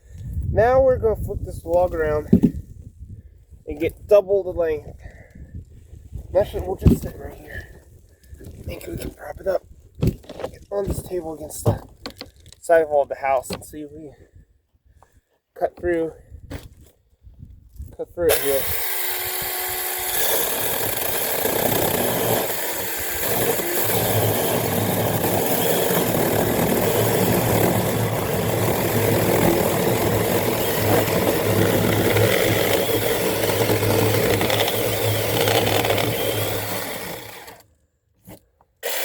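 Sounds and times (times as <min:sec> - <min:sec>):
mini chainsaw cutting log: 0:18.3 - 0:39.0.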